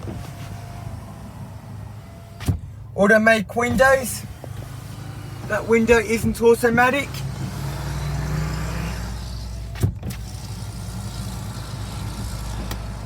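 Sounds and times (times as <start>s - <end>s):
electric window motor whine: 0.0s - 2.7s, 4.2s - 5.6s, 7.1s - 13.0s.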